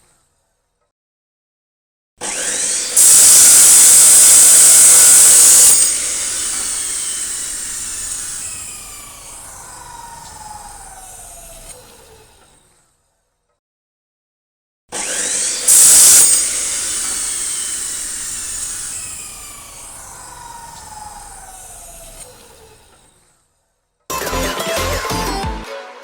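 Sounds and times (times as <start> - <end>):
power tool cutting steel: 2.2 - 12.8, 14.9 - 23.4
tool winding down whine: 2.2 - 12.8, 14.9 - 23.3.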